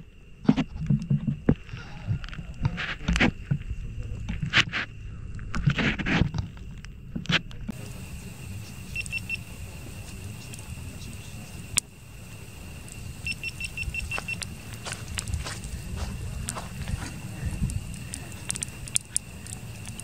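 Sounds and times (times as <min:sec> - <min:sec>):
campfire crackling and popping: 0:00.5 - 0:20.0
faint steady high tone: 0:07.7 - 0:20.0
short rapid beeps: 0:08.9 - 0:09.4, 0:13.2 - 0:14.4.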